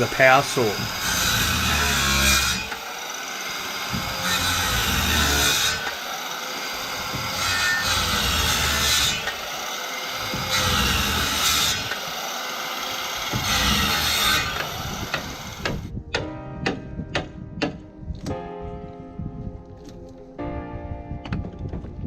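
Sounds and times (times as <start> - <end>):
power saw cutting wood: 0.0 - 15.9.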